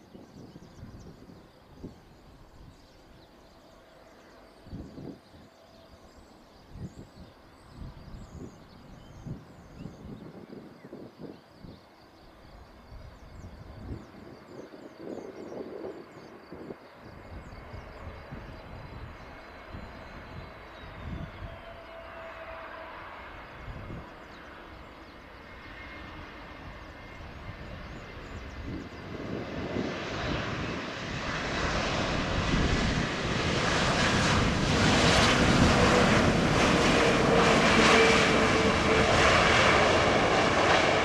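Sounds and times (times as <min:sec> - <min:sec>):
wind buffeting microphone: 0:00.1 - 0:02.9, 0:12.9 - 0:21.6, 0:26.5 - 0:41.0
jet engines roaring: 0:21.4 - 0:41.0.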